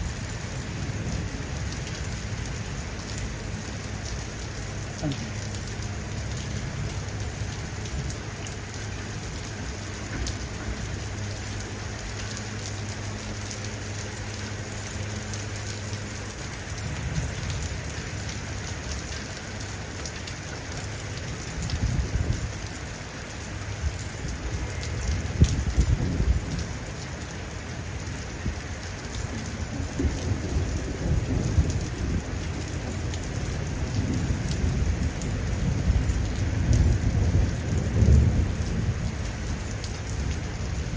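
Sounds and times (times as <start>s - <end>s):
rain hissing: 0.0s - 40.9s
raindrop ticks: 0.4s - 40.9s
thunder rolling: 33.8s - 39.4s.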